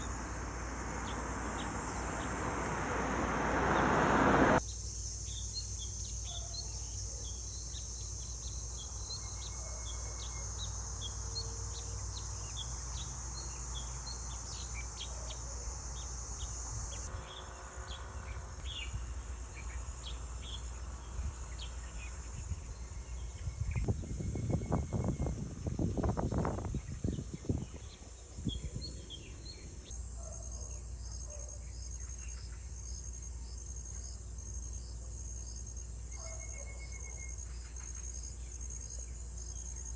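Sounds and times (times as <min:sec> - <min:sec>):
rush of noise: 0:00.0 - 0:04.6
high insect drone: 0:00.0 - 0:05.4.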